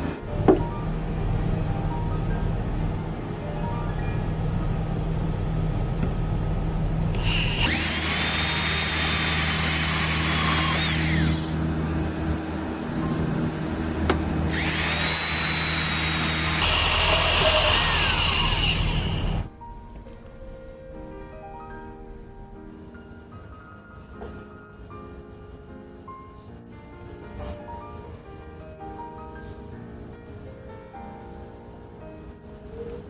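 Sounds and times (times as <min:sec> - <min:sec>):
power drill driving screws into wood: 0:07.2 - 0:11.6, 0:14.5 - 0:19.5.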